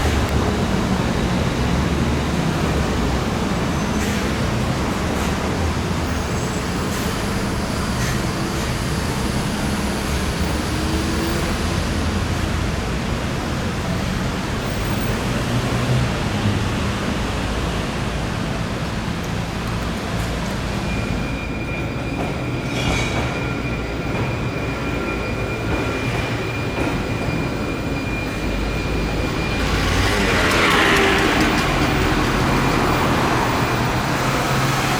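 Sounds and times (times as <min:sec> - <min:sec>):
traffic noise with low hum: 0:00.0 - 0:34.9.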